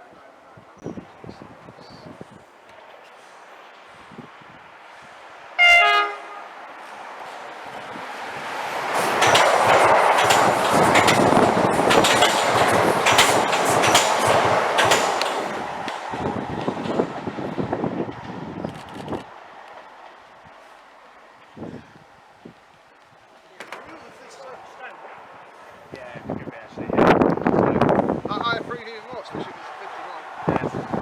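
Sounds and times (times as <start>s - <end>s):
train horn blast: 5.6s - 6.6s
train wheels clattering over rails: 6.8s - 21.8s.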